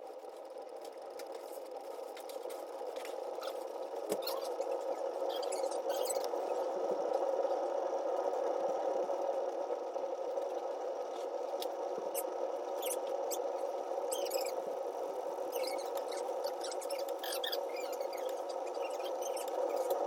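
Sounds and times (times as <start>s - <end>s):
fire crackling: 0.2s - 20.0s
high chirping squeaks: 5.3s - 6.3s, 14.1s - 14.6s, 15.5s - 19.9s.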